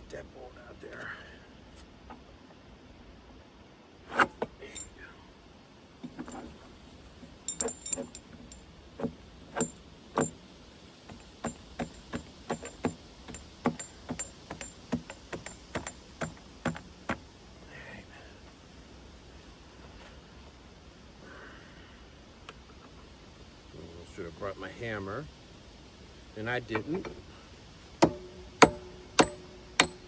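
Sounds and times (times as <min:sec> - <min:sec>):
hand tools clicking on metal: 0:07.3 - 0:10.4, 0:11.1 - 0:17.2, 0:28.0 - 0:30.0.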